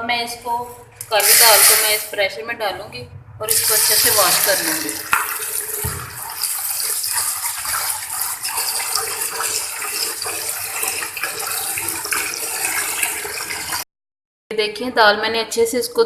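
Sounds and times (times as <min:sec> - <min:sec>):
tap water splashing into pot: 0:03.5 - 0:13.8.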